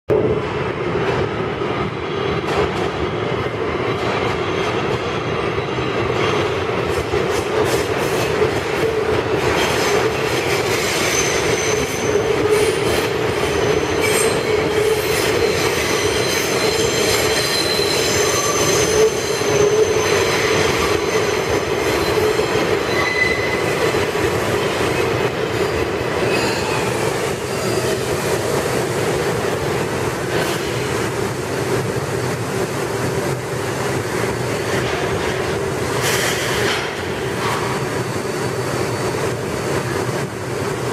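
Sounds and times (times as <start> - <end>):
subway train rumbling: 0.1 - 40.9
high-pitched wheel squeal: 13.5 - 23.6.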